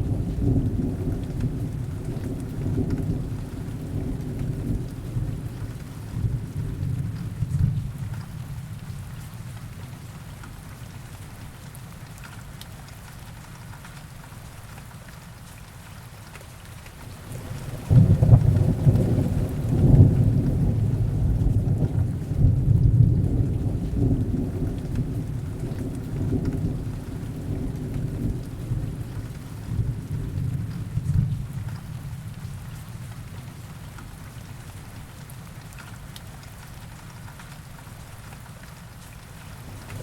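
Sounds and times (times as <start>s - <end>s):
steady rain: 0.0s - 40.0s
thunder rumble: 17.0s - 33.4s, 39.6s - 40.0s.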